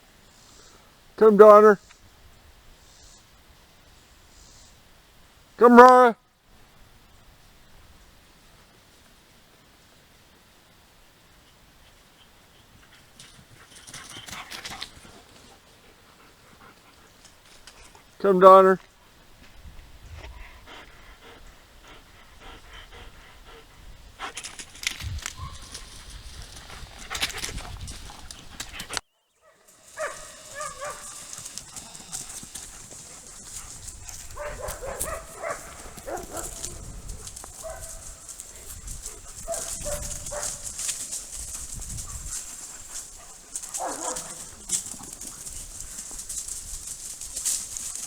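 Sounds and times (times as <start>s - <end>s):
steady high hiss: 0.0s - 5.7s, 6.4s - 14.0s, 29.7s - 39.4s
dogs thumping and rustling: 29.8s - 48.0s.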